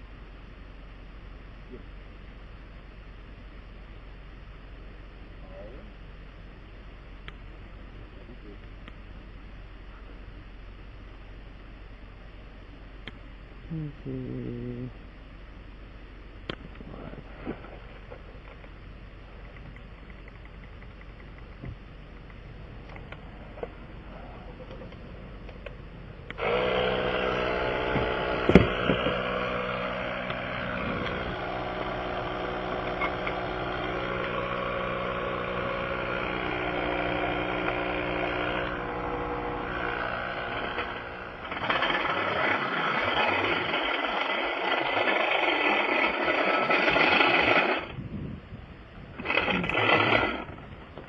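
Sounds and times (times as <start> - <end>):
air compressor motor humming: 21.8 - 48.3, 49.1 - 51.0.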